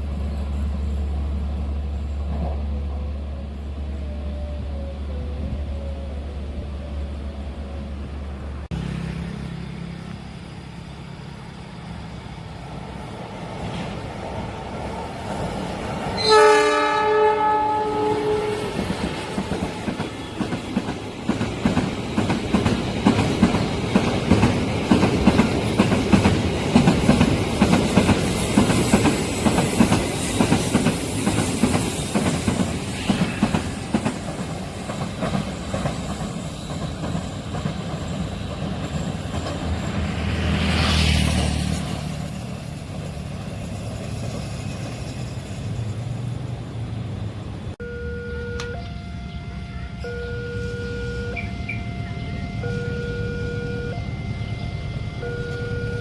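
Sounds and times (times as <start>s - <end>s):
train horn blast: 16.1s - 19.8s, 47.8s - 56.0s
train wheels clattering: 17.8s - 46.2s.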